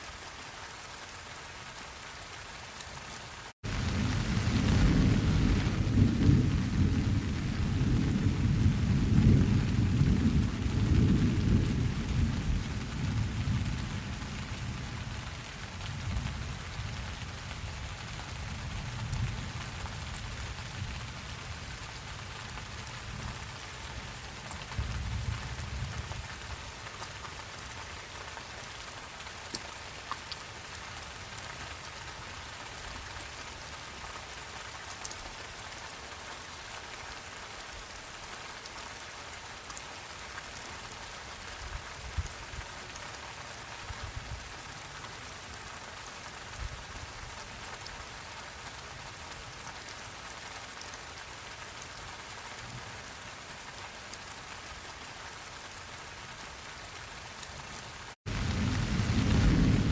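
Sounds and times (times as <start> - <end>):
steady rain falling: 0.0 - 59.9
sharp raindrop ticks: 29.4 - 30.5.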